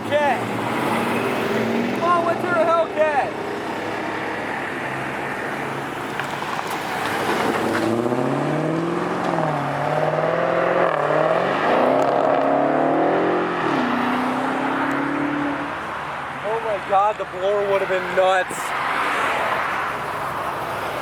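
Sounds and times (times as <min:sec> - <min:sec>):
car engine accelerating hard: 0:06.9 - 0:15.8.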